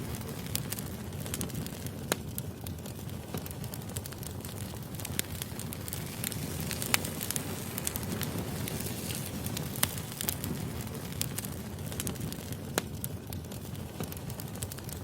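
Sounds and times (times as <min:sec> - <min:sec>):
fire rumbling: 0:00.0 - 0:15.0
wood crackling and popping: 0:00.0 - 0:15.0.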